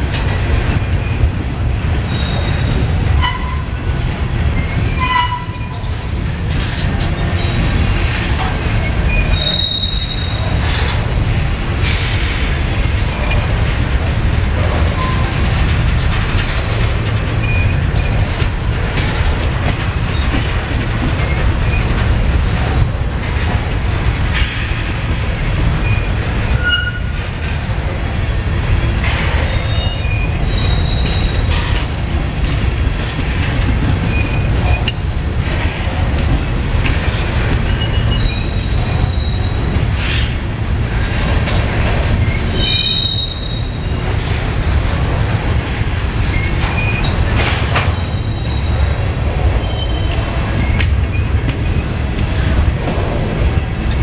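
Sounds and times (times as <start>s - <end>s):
train wheels rumbling on rail: 0.0s - 54.0s
wheel squeals: 2.1s - 3.7s, 9.1s - 10.5s, 17.4s - 18.2s, 29.4s - 31.6s, 37.6s - 39.7s, 47.8s - 49.0s.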